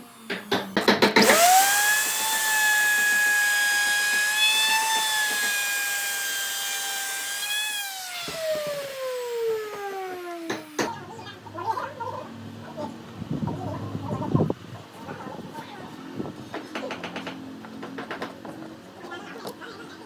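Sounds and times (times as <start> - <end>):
power tool motor whining: 0.0 - 11.2
knocks: 16.5 - 18.6.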